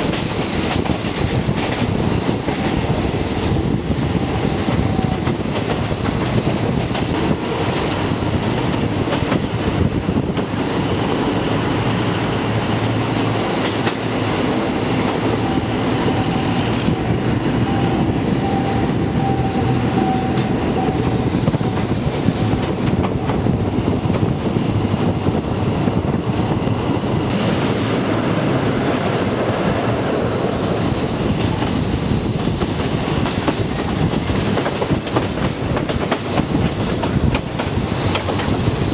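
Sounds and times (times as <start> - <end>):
train rumbling on track: 0.0 - 38.9
wheels clicking over rail joints: 31.4 - 38.9.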